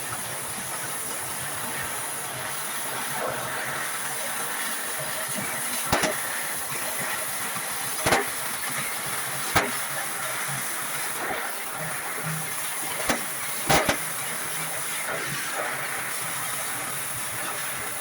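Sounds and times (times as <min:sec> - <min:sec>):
steady hiss: 0:00.7 - 0:18.0
sharp knocks: 0:05.9 - 0:06.2, 0:09.6 - 0:09.8, 0:13.0 - 0:14.1.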